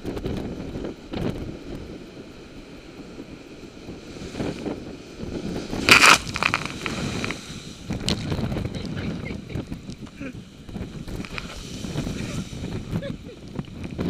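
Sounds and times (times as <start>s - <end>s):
storm wind buffeting microphone: 0.0s - 14.0s
sharp cracks: 5.8s - 8.3s.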